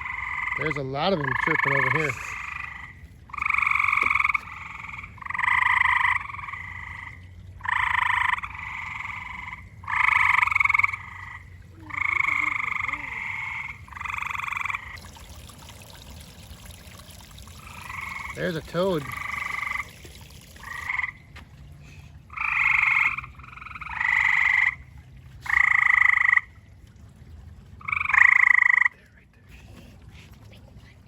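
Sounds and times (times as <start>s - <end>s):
frogs chirping: 0.0s - 16.7s, 17.4s - 21.2s, 22.3s - 24.8s.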